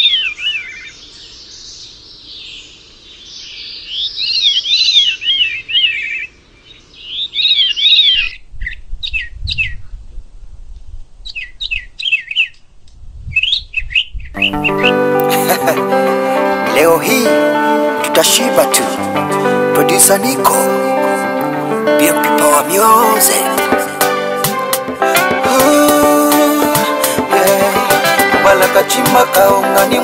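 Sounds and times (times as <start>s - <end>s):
birds whistling: 0.0s - 9.9s, 11.2s - 12.6s, 13.3s - 15.2s
downward bird chirps: 13.4s - 15.2s.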